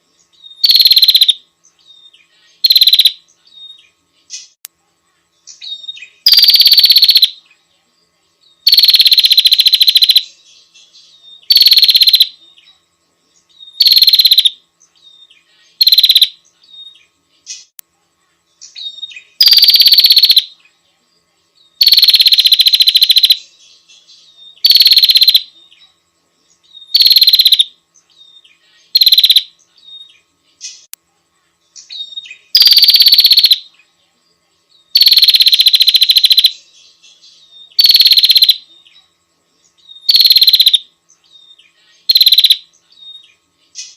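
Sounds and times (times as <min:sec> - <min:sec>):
bird rapid rattling calls: 0:11.5 - 0:12.3, 0:13.8 - 0:14.5, 0:15.8 - 0:16.3, 0:19.4 - 0:20.4, 0:24.6 - 0:25.4, 0:26.9 - 0:27.7, 0:29.0 - 0:29.4, 0:32.5 - 0:33.6, 0:35.0 - 0:36.5, 0:37.8 - 0:38.6, 0:40.1 - 0:40.8, 0:42.1 - 0:42.6.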